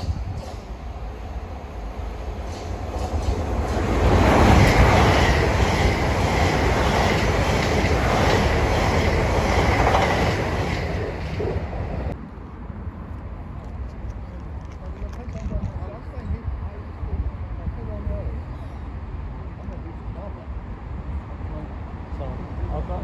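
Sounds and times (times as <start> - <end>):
train high whine: 0.0 - 12.6
train wheels clicking over rail joints: 2.4 - 11.6.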